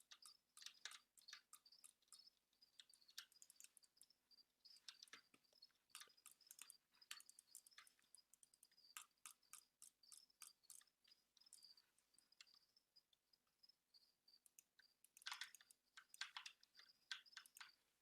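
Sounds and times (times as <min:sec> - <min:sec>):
keyboard keys clicking: 0:14.5 - 0:17.7.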